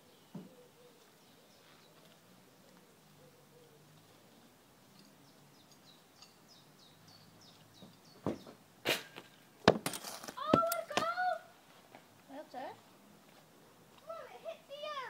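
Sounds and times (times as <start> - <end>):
small bird chirping: 0.0 - 8.6.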